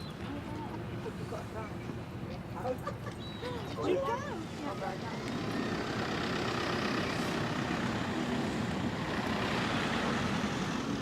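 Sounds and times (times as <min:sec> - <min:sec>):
engine rumbling: 0:04.3 - 0:11.0.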